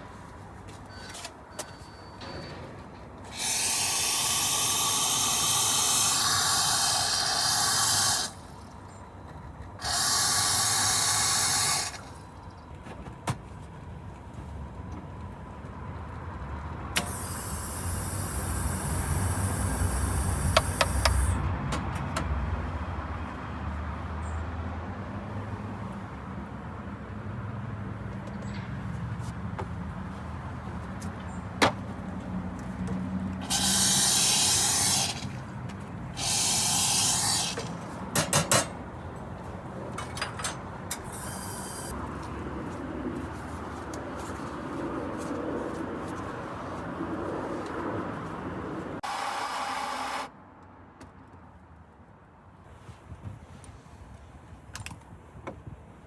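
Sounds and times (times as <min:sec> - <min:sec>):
steam wand hissing: 0:03.3 - 0:08.6, 0:09.8 - 0:12.3, 0:17.0 - 0:21.4, 0:33.4 - 0:35.4, 0:36.2 - 0:37.8.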